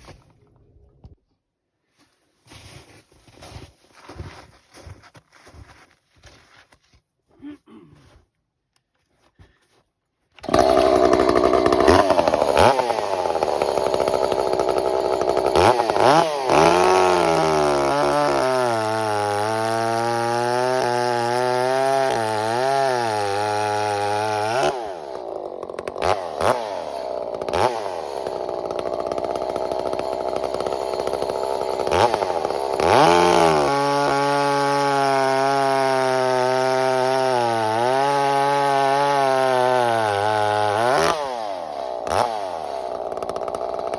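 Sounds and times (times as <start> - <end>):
chainsaw cutting wood: 10.4 - 43.9.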